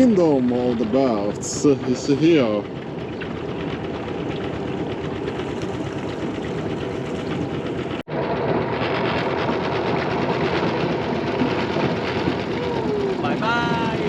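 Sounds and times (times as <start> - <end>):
boat motor chugging: 0.0 - 14.0.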